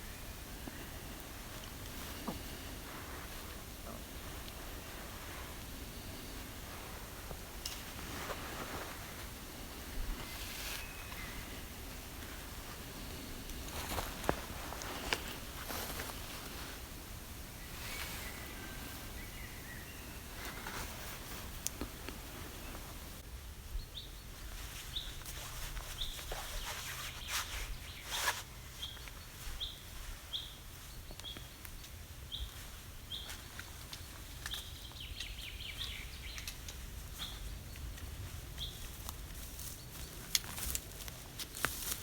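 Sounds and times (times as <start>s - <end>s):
faint rustling: 0.0s - 23.2s, 24.4s - 42.0s
songbird high call: 10.3s - 11.7s.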